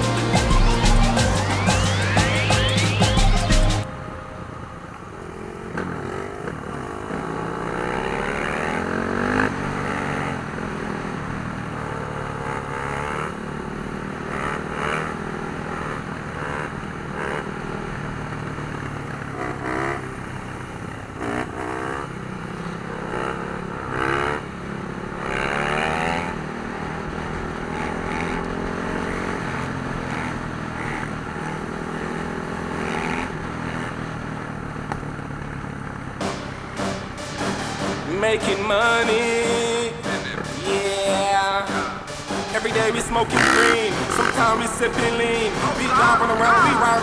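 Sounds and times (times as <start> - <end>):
dirt bike engines revving: 0.0 - 3.9, 4.6 - 47.0
music: 0.0 - 4.6, 36.2 - 47.0.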